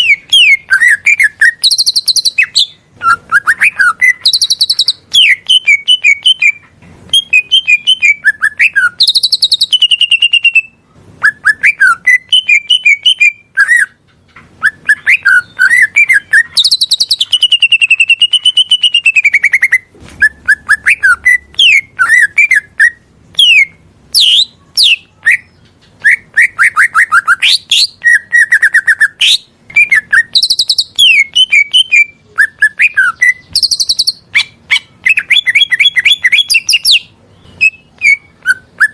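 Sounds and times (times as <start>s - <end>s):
long wavering bird whistle: 0.0s - 13.9s, 14.6s - 24.5s, 26.0s - 38.9s
bird singing varied song: 0.0s - 38.9s.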